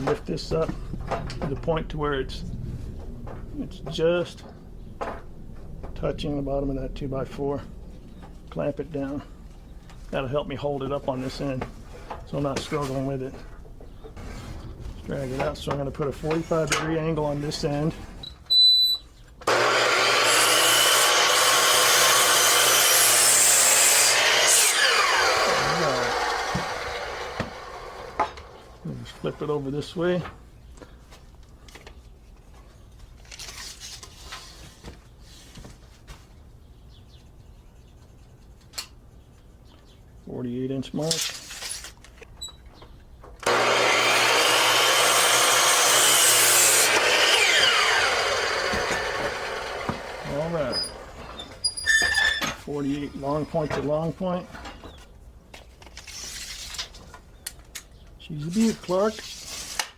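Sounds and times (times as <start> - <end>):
saw blade rasping through wood: 19.5 - 28.2, 43.4 - 51.0
miter saw whirring: 19.5 - 28.7, 43.4 - 51.2.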